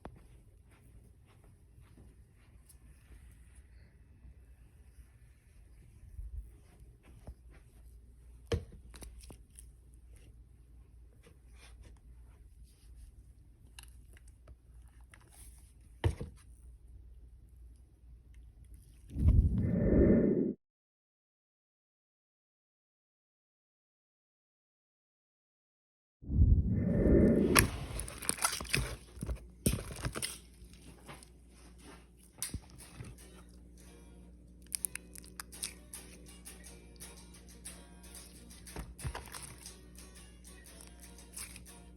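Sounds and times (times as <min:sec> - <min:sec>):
low handling rumble: 0:19.1 - 0:20.5, 0:26.3 - 0:28.2
hard slime crackling and crunching: 0:27.9 - 0:31.0
small objects clicking and crackling: 0:32.2 - 0:41.9.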